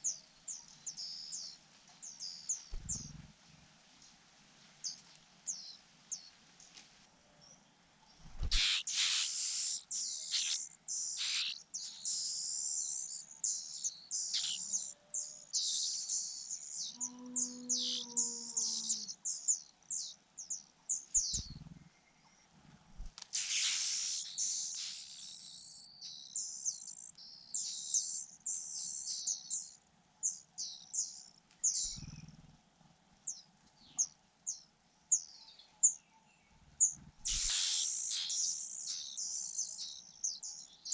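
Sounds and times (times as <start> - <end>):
soft low thumps: 2.7 - 3.3
nestlings chirping: 8.4 - 14.9, 21.2 - 21.7, 23.4 - 26.5, 36.8 - 39.7.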